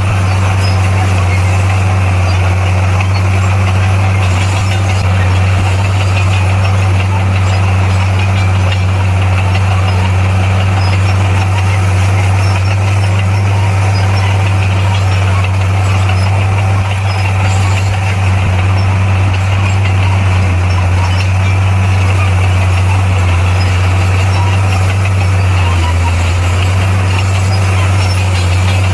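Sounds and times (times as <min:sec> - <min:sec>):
diesel engine droning: 0:00.0 - 0:28.9.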